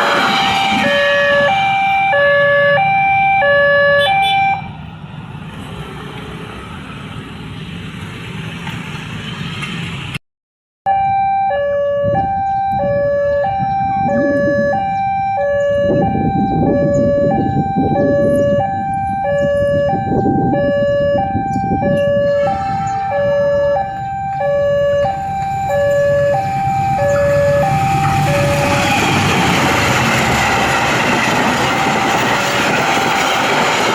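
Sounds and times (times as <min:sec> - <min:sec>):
approaching train rushing: 0:00.0 - 0:03.0, 0:21.3 - 0:33.9
level crossing two-tone alarm: 0:00.0 - 0:04.7, 0:10.9 - 0:33.9
rumbling traffic: 0:00.0 - 0:10.2, 0:11.6 - 0:33.9.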